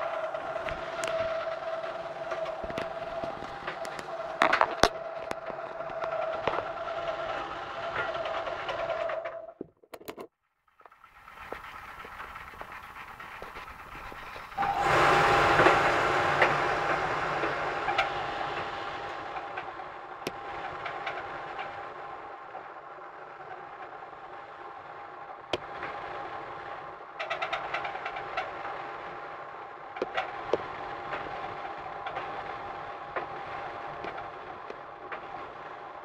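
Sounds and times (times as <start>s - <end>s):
tumble dryer whining and rumbling: 0.0s - 9.6s, 11.1s - 36.0s
rattling clicks: 0.0s - 14.6s.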